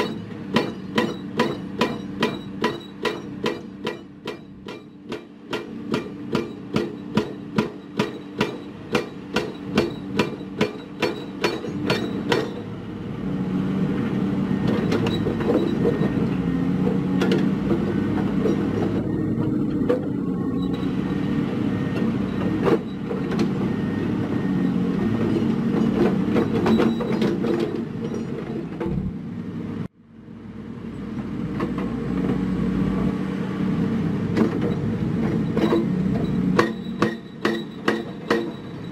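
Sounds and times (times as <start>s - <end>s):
diesel construction machine engine: 0.0s - 38.9s
metal clanks: 34.4s - 38.9s.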